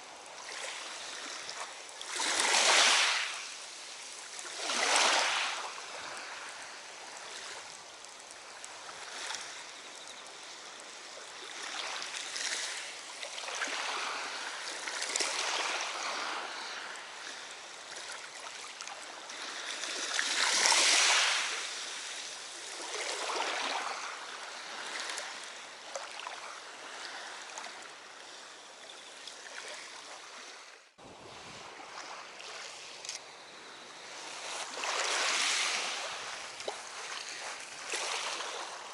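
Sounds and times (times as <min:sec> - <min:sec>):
lake water lapping: 0:34.0 - 0:38.9.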